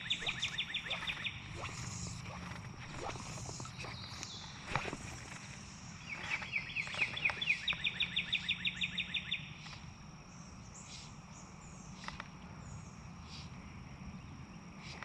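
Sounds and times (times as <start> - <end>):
songbird whistled trill: 0.0 - 5.0
high insect drone: 0.0 - 15.0.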